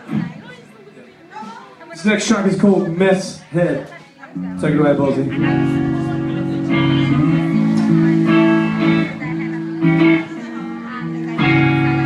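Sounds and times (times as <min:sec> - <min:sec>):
guitar chords ringing: 0:04.4 - 0:12.0.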